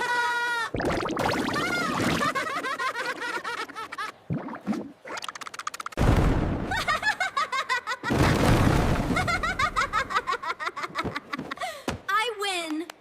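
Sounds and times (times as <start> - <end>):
high-pitched cartoon giggling: 1.4 - 4.2
loud rumbling booms: 6.0 - 7.0.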